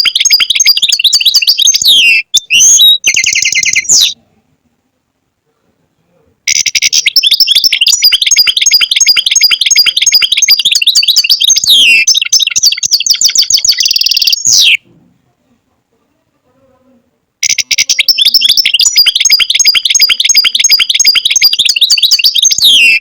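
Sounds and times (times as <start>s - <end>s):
goldfinch twittering song: 0.0s - 4.2s, 6.5s - 14.8s, 17.4s - 23.0s.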